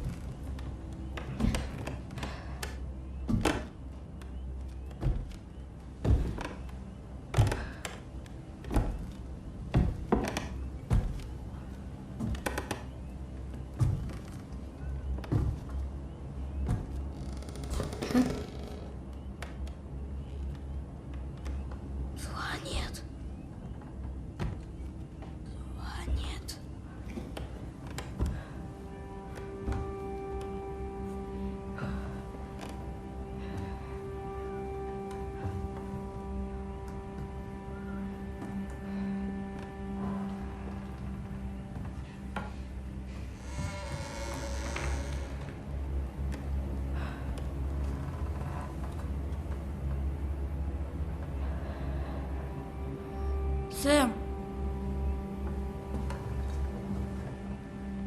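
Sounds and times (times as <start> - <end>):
heavy thuds and knocks: 8.6 - 12.9.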